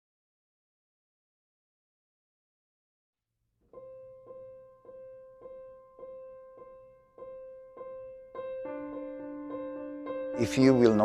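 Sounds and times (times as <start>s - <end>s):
piano note struck repeatedly: 3.7s - 11.0s.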